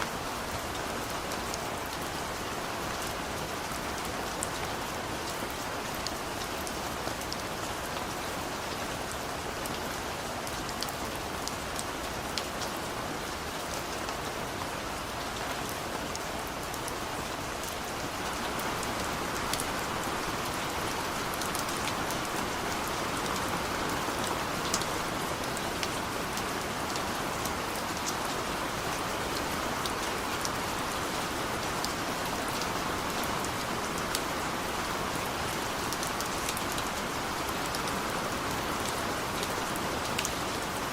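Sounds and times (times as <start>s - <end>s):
rain pattering on a surface: 0.0s - 40.9s.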